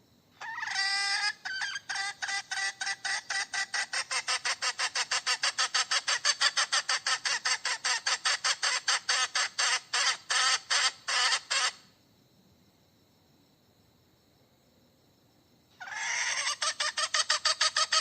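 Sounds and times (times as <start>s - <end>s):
hen cackling: 0.4s - 11.9s, 15.8s - 18.0s.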